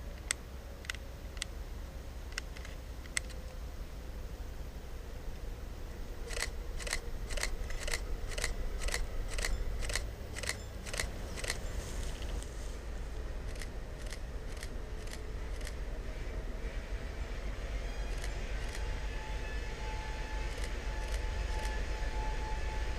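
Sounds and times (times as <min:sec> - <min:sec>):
low hum: 0:00.0 - 0:22.9
sharp metallic ticks: 0:06.3 - 0:11.6, 0:13.4 - 0:15.8.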